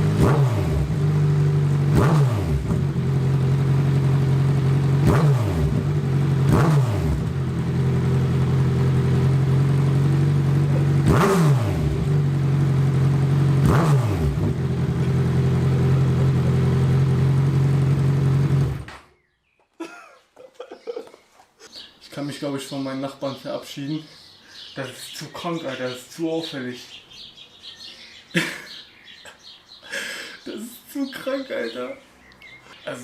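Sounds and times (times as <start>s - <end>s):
motorcycle engine idling and revving: 0.0s - 19.3s.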